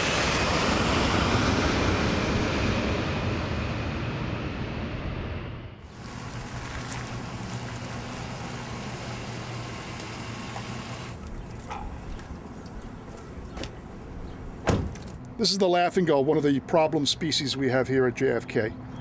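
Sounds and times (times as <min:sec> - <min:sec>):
vehicle engine humming: 0:05.8 - 0:15.6.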